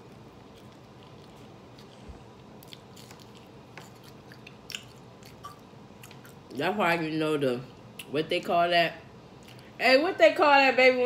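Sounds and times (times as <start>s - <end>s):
person chewing food: 0.0s - 6.5s, 9.4s - 9.7s
faint room hiss: 0.0s - 11.0s.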